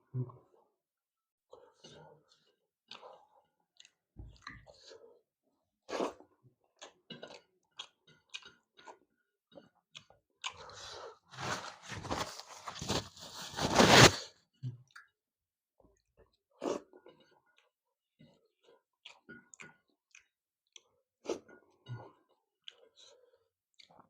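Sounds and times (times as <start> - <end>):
person chewing and crunching: 6.0 - 14.2.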